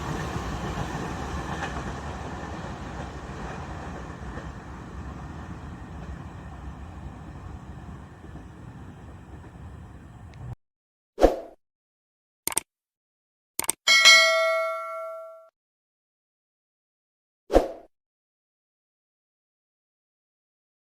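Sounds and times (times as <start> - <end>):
passing train rumble: 0.0 - 10.6
bright bell ding: 13.9 - 15.5.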